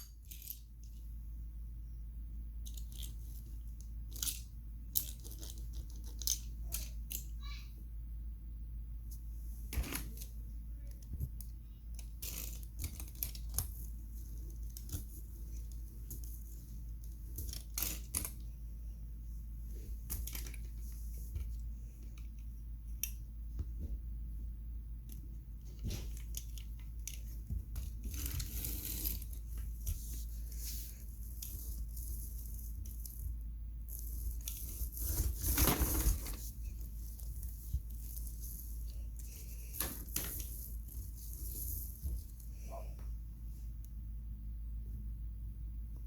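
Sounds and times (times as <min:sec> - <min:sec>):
toy cars being handled: 0:00.0 - 0:01.1, 0:02.6 - 0:07.5, 0:09.1 - 0:18.5, 0:19.8 - 0:23.2, 0:25.1 - 0:42.8
steady low hum: 0:00.0 - 0:46.0.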